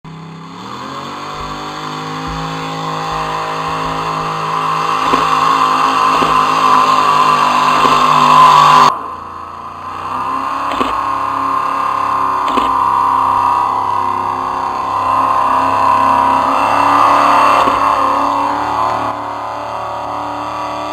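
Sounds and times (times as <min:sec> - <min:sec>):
tractor engine running under load: 0:00.1 - 0:13.5.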